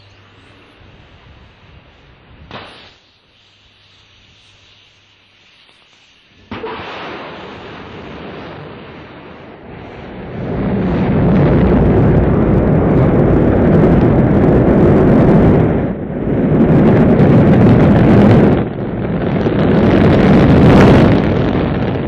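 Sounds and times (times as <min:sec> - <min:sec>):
airplane engine roar: 0:08.5 - 0:22.0.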